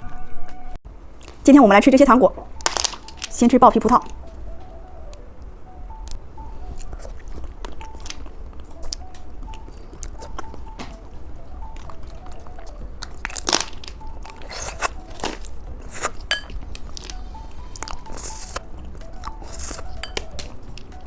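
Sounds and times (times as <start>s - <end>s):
soft background music: 0.0s - 21.0s
crunchy candy chewing: 11.8s - 18.6s.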